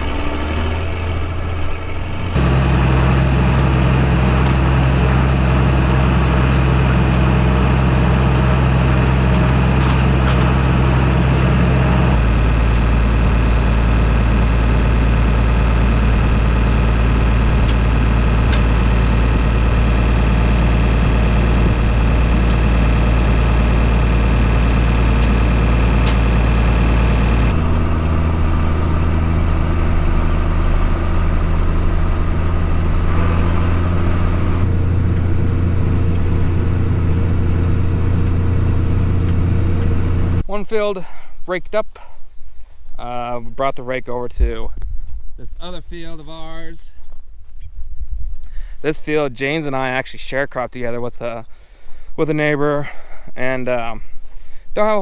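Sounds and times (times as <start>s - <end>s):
tractor diesel engine running: 0.0s - 41.2s.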